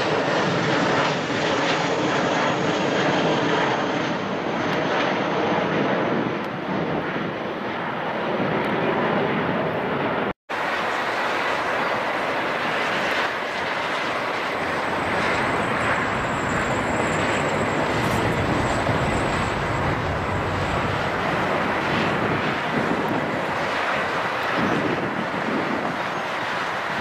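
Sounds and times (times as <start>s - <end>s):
jet engines roaring: 0.0s - 27.0s
faint high whine: 14.3s - 23.5s.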